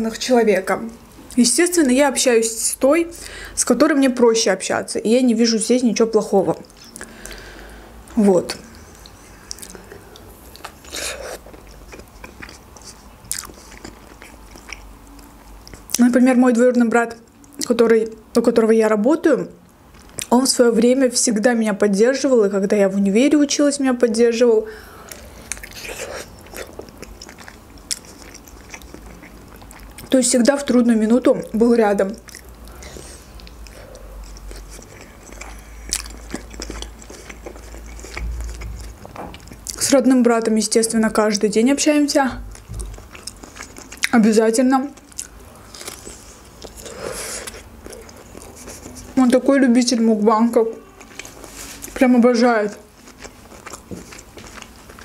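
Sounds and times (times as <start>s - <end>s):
biting and chewing: 8.6s - 16.0s, 25.1s - 30.8s, 32.0s - 40.0s, 42.5s - 49.6s, 52.6s - 55.0s.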